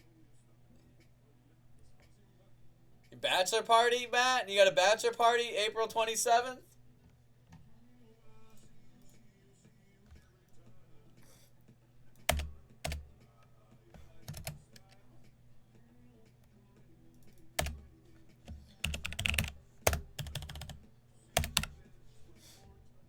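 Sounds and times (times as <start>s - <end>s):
sharp clicks and taps on a desk: 12.2s - 13.1s, 21.4s - 21.8s.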